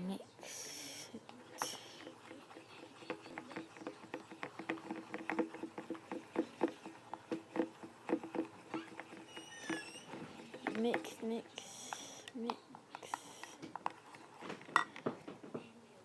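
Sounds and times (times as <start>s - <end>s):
slime squelching being stirred: 0.5s - 15.4s.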